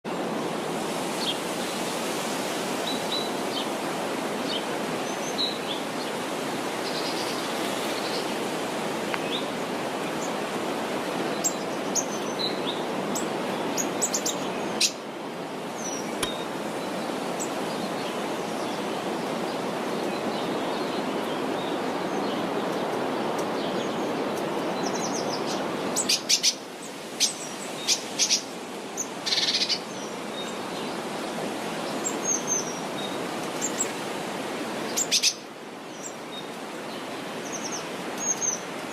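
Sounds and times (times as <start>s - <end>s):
birds chirping: 15.7s - 22.9s.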